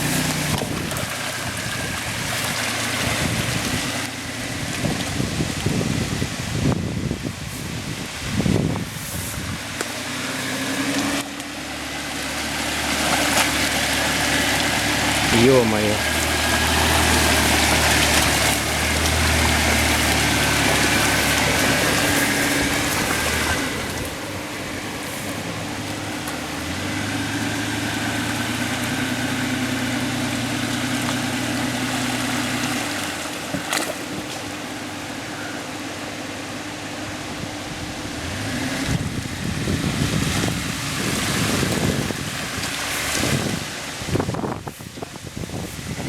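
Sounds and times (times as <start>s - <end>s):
suv engine running: 0.0s - 46.0s
water churning and splashing: 0.0s - 46.0s.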